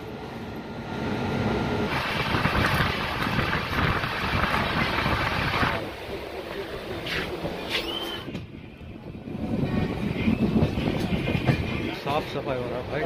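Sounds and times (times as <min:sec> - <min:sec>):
train in motion: 0:00.0 - 0:13.0
wind buffeting microphone: 0:01.9 - 0:05.9, 0:08.2 - 0:12.2.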